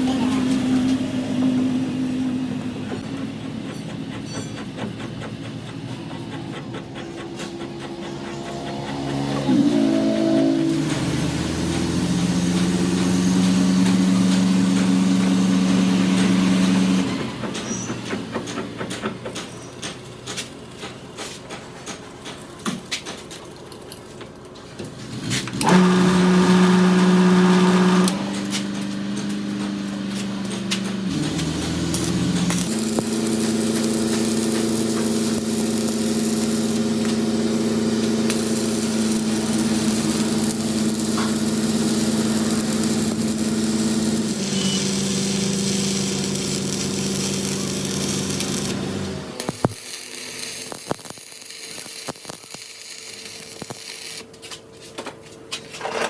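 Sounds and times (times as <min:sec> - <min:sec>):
machine motor humming: 0:25.6 - 0:54.4.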